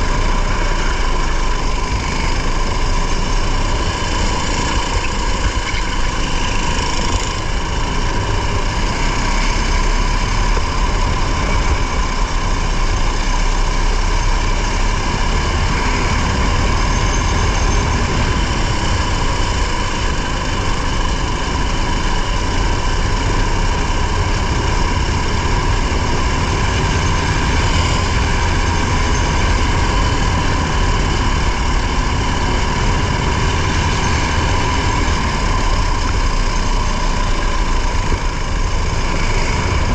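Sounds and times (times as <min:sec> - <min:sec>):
vehicle engine running steadily: 0:00.0 - 0:39.9.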